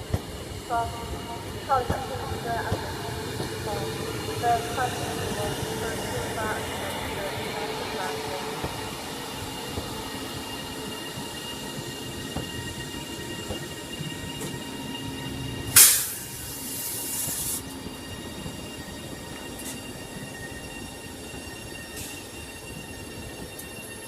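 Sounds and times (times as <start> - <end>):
train electrical whine and rumble: 0.0 - 24.0
loud air hiss: 15.7 - 17.7.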